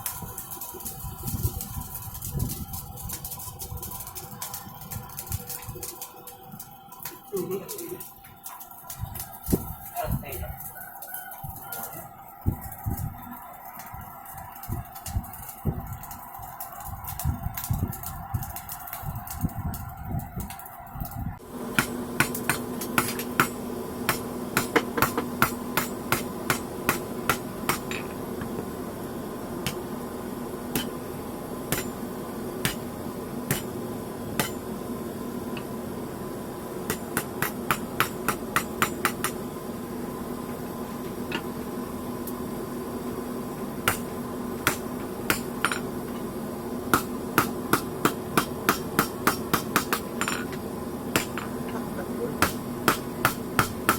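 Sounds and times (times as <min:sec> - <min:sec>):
steady hum: 0:00.0 - 0:53.9
hammer striking hot steel on anvil: 0:21.7 - 0:28.6, 0:29.6 - 0:29.9, 0:30.7 - 0:31.1, 0:31.7 - 0:33.8, 0:34.4 - 0:34.7, 0:36.8 - 0:39.4, 0:43.8 - 0:46.3, 0:46.9 - 0:51.8, 0:52.4 - 0:53.9.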